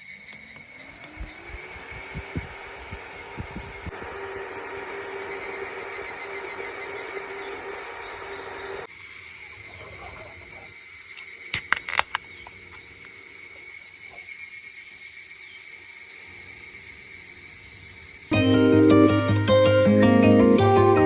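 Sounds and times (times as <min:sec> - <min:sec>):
insects chirping: 0:00.0 - 0:07.5, 0:08.8 - 0:18.4
sharp clicks: 0:11.6 - 0:12.9
guitar music: 0:18.4 - 0:21.0.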